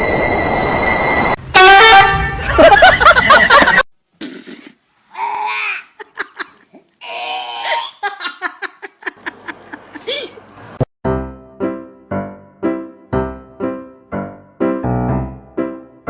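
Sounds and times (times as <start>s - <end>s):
person laughing and giggling: 2.5s - 3.8s, 5.7s - 6.9s, 7.6s - 10.5s
piano music: 11.0s - 16.0s.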